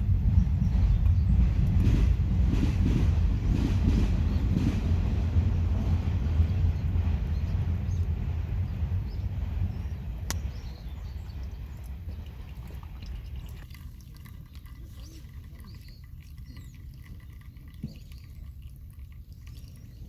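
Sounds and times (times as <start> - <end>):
low rumble: 0.0 - 13.6.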